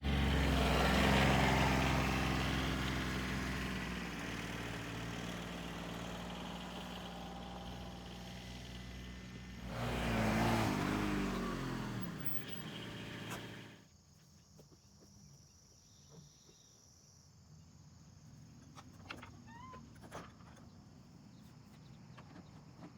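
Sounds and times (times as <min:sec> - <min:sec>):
vehicles passing by: 0:00.0 - 0:13.8.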